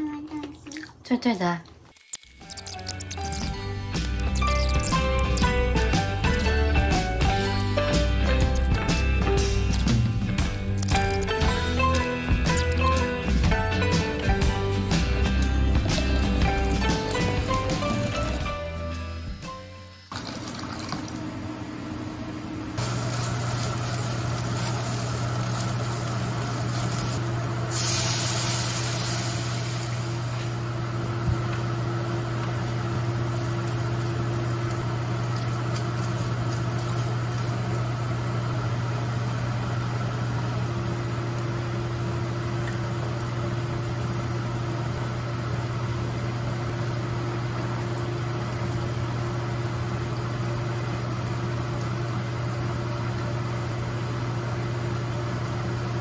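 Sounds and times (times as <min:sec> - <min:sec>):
low motor hum: 0:02.0 - 0:56.0
water hissing in hot wok: 0:22.8 - 0:30.6.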